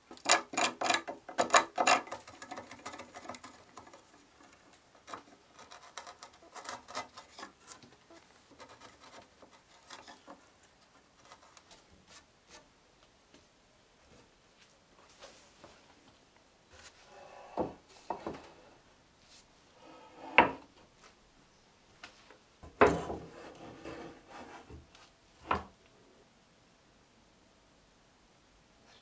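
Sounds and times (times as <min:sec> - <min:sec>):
chisel scraping wood: 0:00.1 - 0:10.5, 0:22.8 - 0:24.8.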